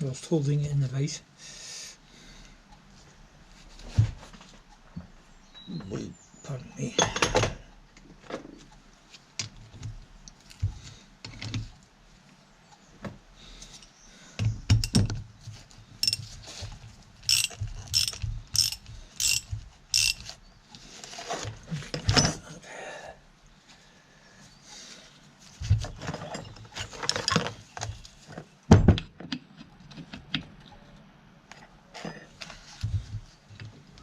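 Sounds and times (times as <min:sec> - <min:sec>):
metal parts clattering: 0:14.8 - 0:15.1, 0:16.0 - 0:16.2, 0:17.3 - 0:20.3, 0:26.0 - 0:27.6
ratchet wrench clicking: 0:16.0 - 0:16.2, 0:17.3 - 0:20.3.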